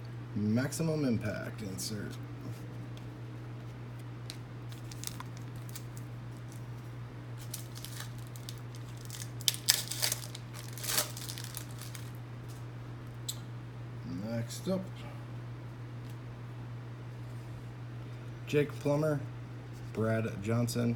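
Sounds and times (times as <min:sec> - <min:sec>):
wrapper crinkling and tearing: 0:04.7 - 0:06.6, 0:07.4 - 0:12.6.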